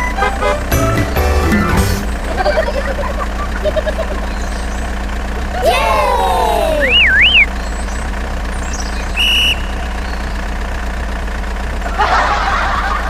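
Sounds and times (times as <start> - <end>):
engine idling: 0.0 - 13.0
short beep: 6.8 - 7.5
wavering whistle-like tone: 6.8 - 7.5, 9.2 - 9.8.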